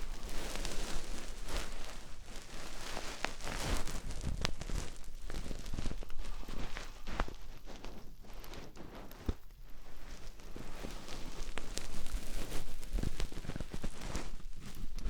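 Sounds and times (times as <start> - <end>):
rustling scratching texture: 0.0 - 15.0
sharp crackles and clicks: 0.0 - 15.0.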